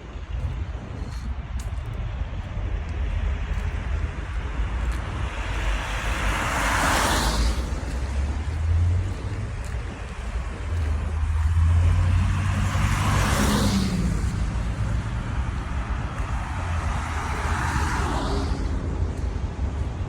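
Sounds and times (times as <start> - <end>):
road traffic rumble: 0.0 - 20.0
vehicles swishing past: 0.0 - 20.0.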